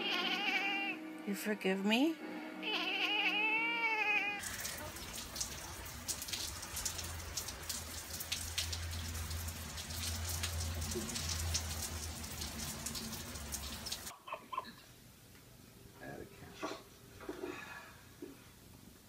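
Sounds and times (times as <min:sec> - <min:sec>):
steady rain falling: 0:04.4 - 0:14.1.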